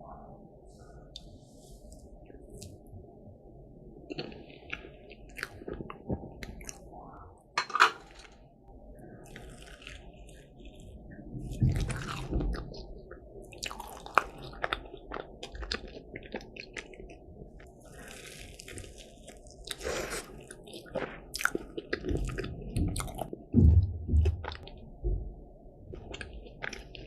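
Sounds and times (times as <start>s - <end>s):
crunching and chewing pastry: 4.1s - 7.0s, 8.0s - 25.2s, 25.8s - 27.0s.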